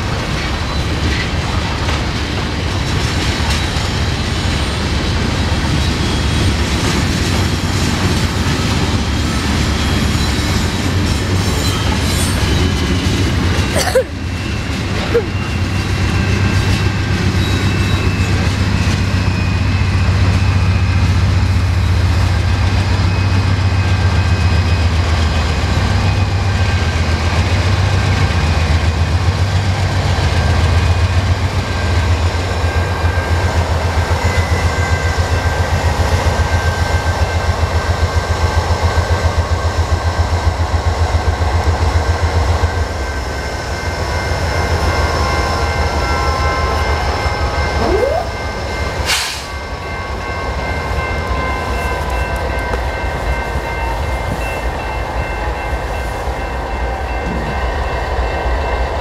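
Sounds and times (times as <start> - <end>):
freight train wheel clatter: 0.0 - 57.8
diesel locomotive passing: 0.0 - 59.0
crossing bell ringing: 7.8 - 27.6, 30.1 - 39.0, 41.9 - 59.0.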